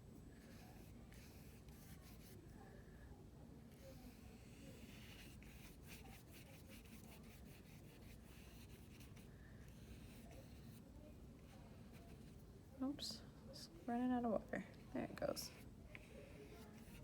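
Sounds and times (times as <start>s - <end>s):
paintbrush strokes on paper: 0.2s - 2.6s, 3.7s - 12.6s, 15.0s - 17.0s.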